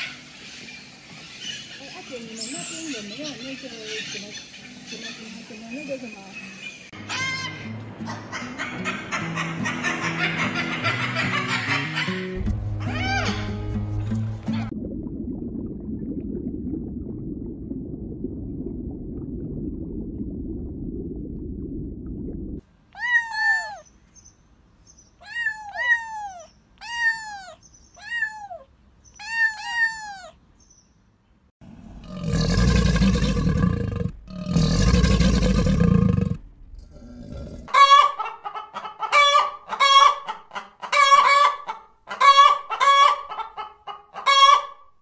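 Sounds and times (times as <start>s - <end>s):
low underwater rumble: 14.6s - 22.6s
cats meowing: 23.0s - 23.9s, 25.2s - 30.4s
large animal growling: 31.9s - 37.7s.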